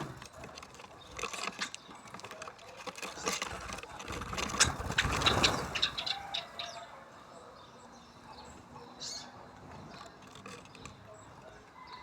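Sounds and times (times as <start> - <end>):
birds wings flapping: 0.0 - 6.3.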